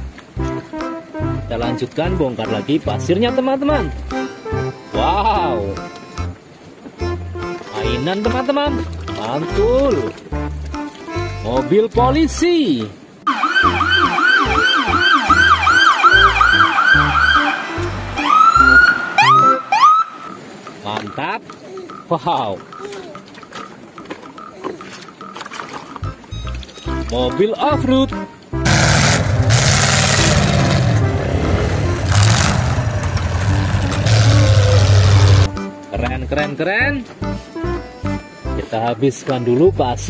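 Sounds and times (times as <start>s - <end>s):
police siren: 13.3s - 20.4s
vehicle engine revving: 28.6s - 35.5s.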